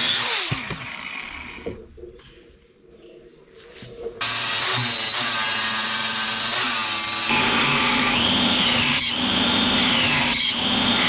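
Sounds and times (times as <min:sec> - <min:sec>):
electric power tool whining: 0:00.0 - 0:01.6, 0:04.2 - 0:11.0.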